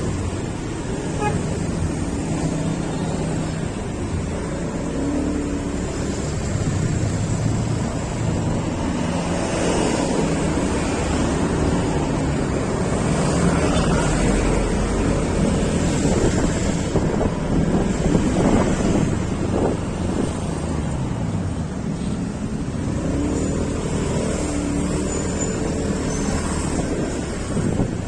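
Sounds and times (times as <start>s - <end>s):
road noise: 0.0s - 28.0s
wind rushing over microphone: 6.4s - 21.4s, 26.8s - 28.0s.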